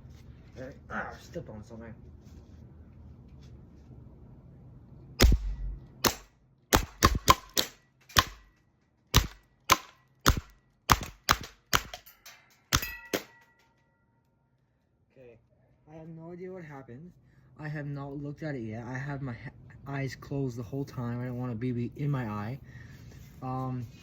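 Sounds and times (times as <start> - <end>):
airsoft pistol shots: 5.2 - 8.5, 9.1 - 12.1, 12.7 - 13.4.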